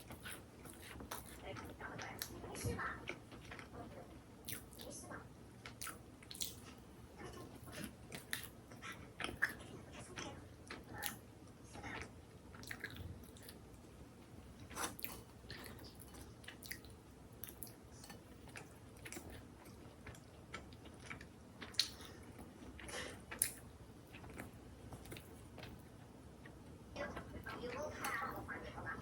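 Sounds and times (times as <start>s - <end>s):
food crunches and clicks: 4.4s - 4.9s, 5.6s - 13.8s, 14.5s - 26.6s
person chewing and biting food: 5.6s - 6.9s, 12.5s - 13.7s, 14.5s - 25.8s.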